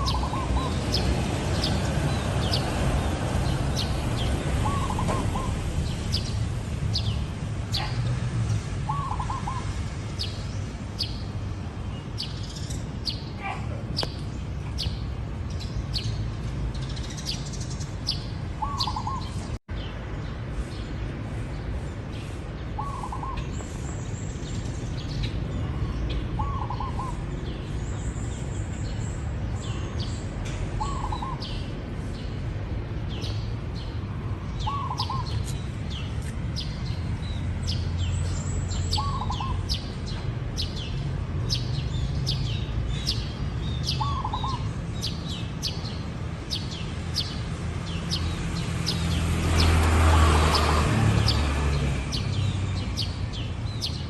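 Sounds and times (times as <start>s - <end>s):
small birds chirping: 0.0s - 54.0s
dove cooing: 4.6s - 5.6s.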